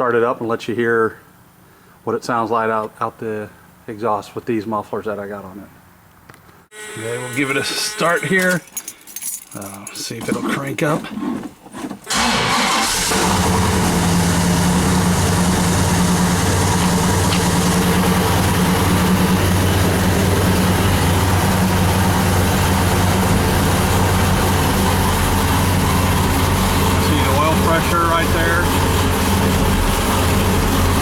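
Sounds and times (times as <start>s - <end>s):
engine cranking: 8.3s - 31.0s
car engine running: 12.1s - 31.0s.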